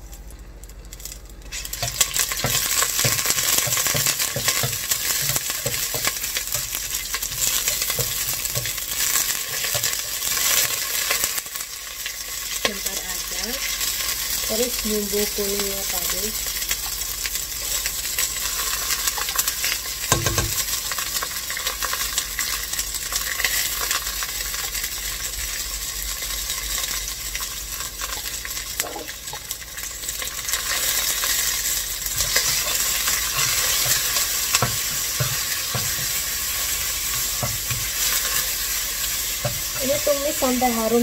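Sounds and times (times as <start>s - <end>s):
paste sizzling in hot oil: 1.4s - 41.0s
spoon scraping and knocking pot: 1.8s - 8.8s.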